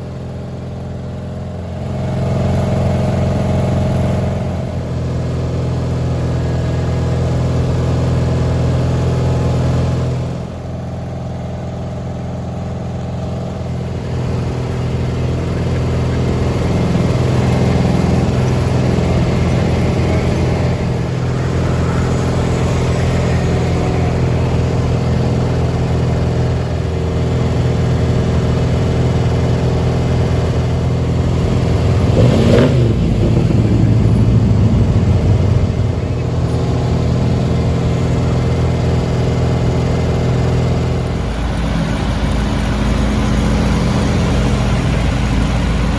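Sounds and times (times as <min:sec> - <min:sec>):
garden tractor engine running: 0:00.0 - 0:45.9.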